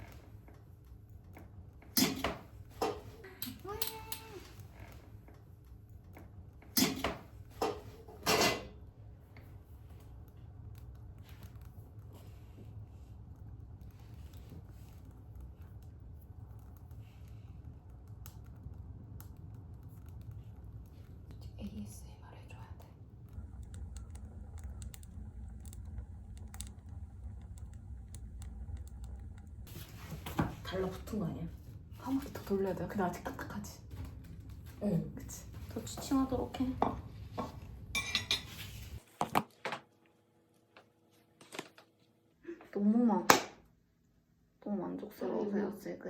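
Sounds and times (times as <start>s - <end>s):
low steady rumble: 0.0s - 39.0s
firewood crackling in a stove: 0.0s - 39.2s.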